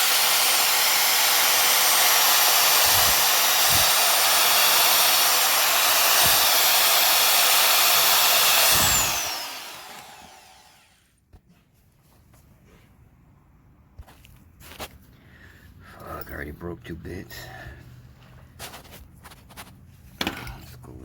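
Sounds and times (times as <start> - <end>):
drill motor whining down: 0.0 - 11.0
power drill drilling: 0.0 - 11.0.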